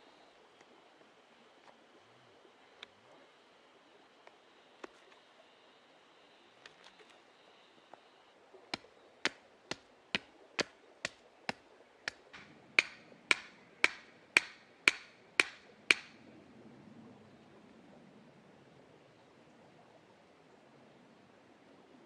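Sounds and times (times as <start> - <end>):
hammer blows: 12.1 - 16.2.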